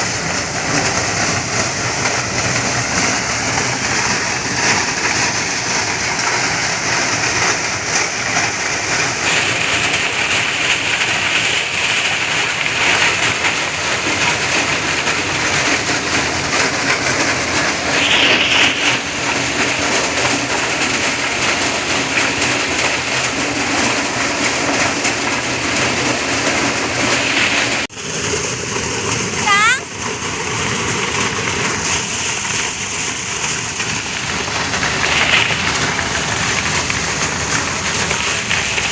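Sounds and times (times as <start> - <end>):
corn thresher clattering: 0.0 - 38.9.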